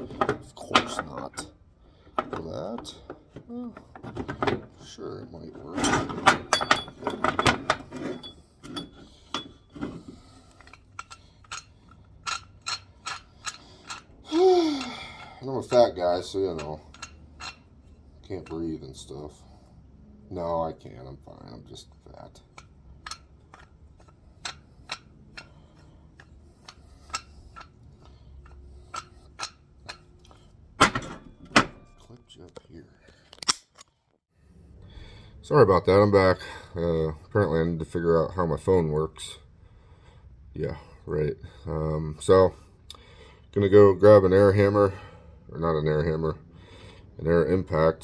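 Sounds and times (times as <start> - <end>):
metal tools clinking: 5.7 - 18.9.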